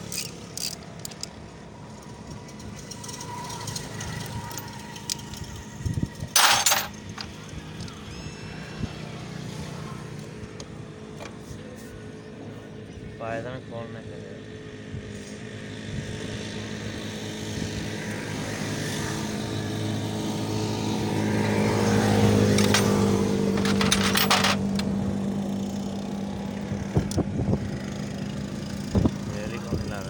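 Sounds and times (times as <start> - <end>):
sharp metallic clicking: 0.0 - 1.4
vehicle engine humming: 0.0 - 30.0
metal clinks: 6.2 - 7.4, 22.5 - 24.9.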